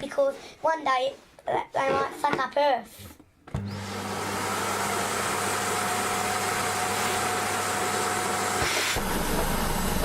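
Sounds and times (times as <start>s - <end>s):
vacuum cleaner motor hum: 3.5s - 10.0s
vacuum cleaner air rushing: 3.6s - 10.0s.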